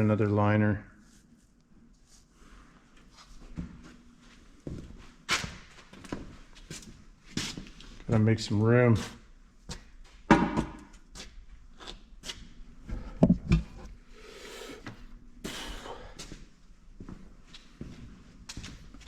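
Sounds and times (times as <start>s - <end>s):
objects knocking on a workbench: 10.3s - 10.9s.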